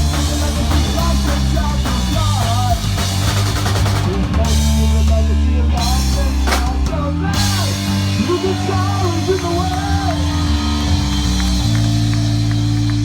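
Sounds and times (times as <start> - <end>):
person singing: 0.0 - 3.2, 4.0 - 11.0
punk rock band playing: 0.0 - 13.0.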